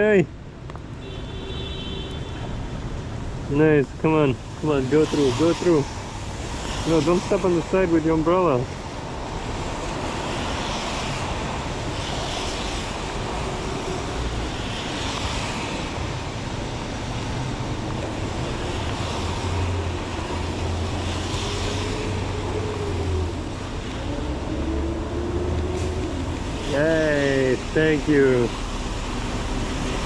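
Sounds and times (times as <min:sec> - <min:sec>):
heavy rain: 0:02.4 - 0:30.0
tyres hissing on wet pavement: 0:02.6 - 0:30.0
low engine hum: 0:16.8 - 0:30.0.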